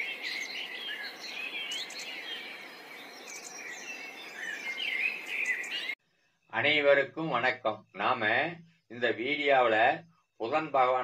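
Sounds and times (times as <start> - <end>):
small birds chirping and twittering: 0.0 - 6.8.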